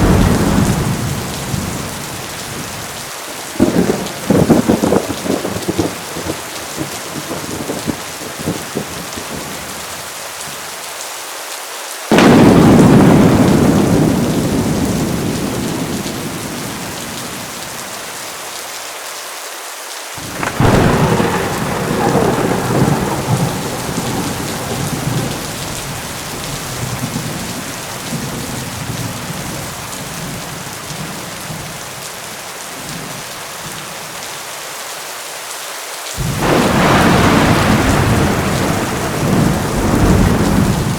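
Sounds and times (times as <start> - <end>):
thunderclaps: 0.0 - 2.9, 3.6 - 9.6, 12.1 - 17.8, 20.2 - 31.7, 36.2 - 40.9
heavy rain: 0.0 - 40.9.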